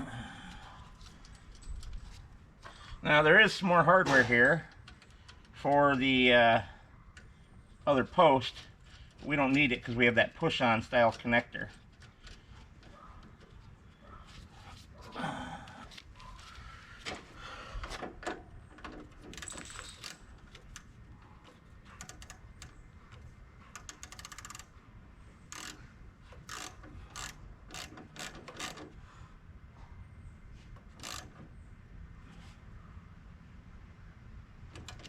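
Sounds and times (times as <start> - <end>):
metal tools clinking: 19.3 - 20.8
ratchet wrench clicking: 19.3 - 20.9, 22.0 - 22.8, 23.7 - 24.7, 25.4 - 28.9, 30.9 - 31.4.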